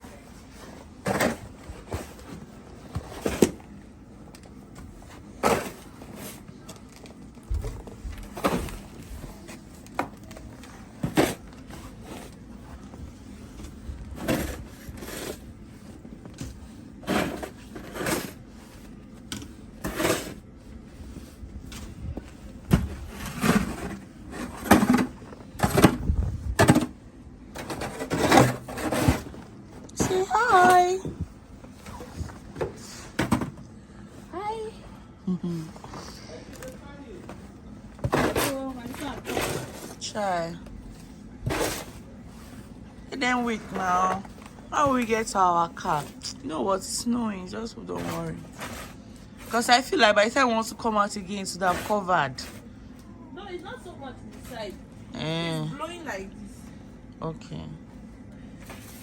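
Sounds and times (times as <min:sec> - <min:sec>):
snow shovel scraping snow: 0:14.2 - 0:15.4, 0:17.0 - 0:18.4, 0:19.8 - 0:20.4, 0:23.0 - 0:25.1, 0:38.1 - 0:40.2, 0:51.4 - 0:52.6.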